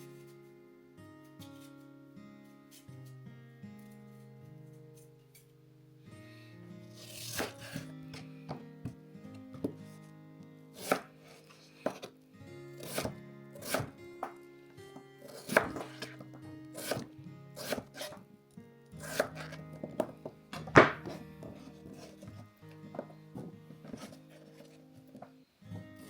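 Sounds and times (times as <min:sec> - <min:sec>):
soft background music: 0:00.0 - 0:26.0
knife chopping on cutting board: 0:07.0 - 0:08.2, 0:10.8 - 0:12.1, 0:12.8 - 0:14.4, 0:15.2 - 0:18.2, 0:19.0 - 0:22.4, 0:23.0 - 0:25.2.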